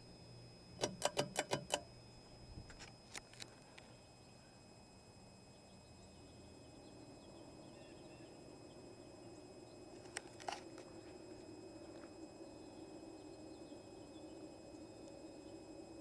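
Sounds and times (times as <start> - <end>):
ceiling fan whirring: 0.0 - 16.0
sharp clicks: 0.8 - 1.9.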